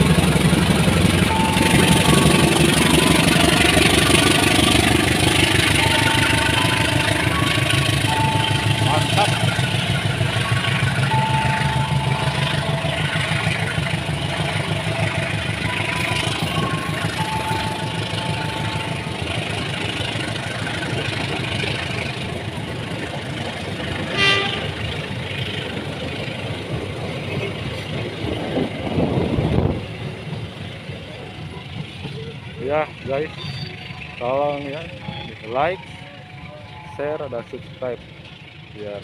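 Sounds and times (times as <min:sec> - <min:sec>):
train wheels clattering on rails: 0:00.0 - 0:36.6
high train horn toot: 0:01.3 - 0:04.8, 0:05.4 - 0:19.7, 0:24.0 - 0:25.0.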